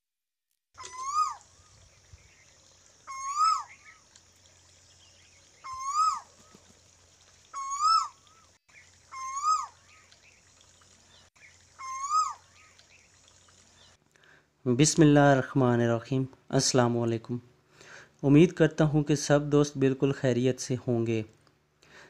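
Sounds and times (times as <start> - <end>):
bird calling rising and falling: 0.8 - 14.0.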